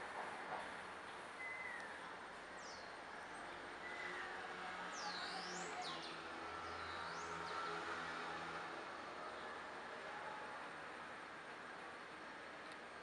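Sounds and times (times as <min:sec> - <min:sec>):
faint bird chirps: 0:01.4 - 0:02.0.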